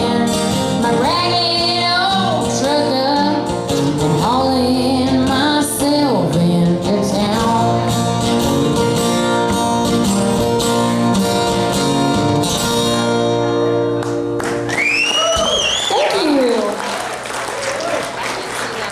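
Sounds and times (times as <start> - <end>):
woman singing: 0.0 - 8.1
country band playing: 0.0 - 16.7.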